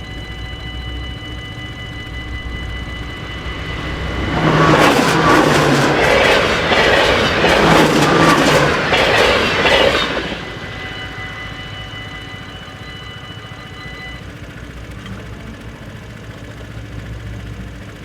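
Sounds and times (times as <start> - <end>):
train wheels clacking over rails: 0.0 - 13.8.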